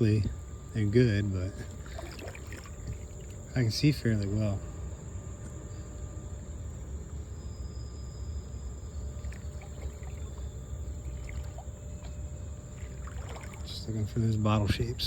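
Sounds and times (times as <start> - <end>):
river water rumbling around kayak: 1.2 - 3.5, 9.1 - 15.0
faint water drips: 1.6 - 3.5, 9.2 - 14.1.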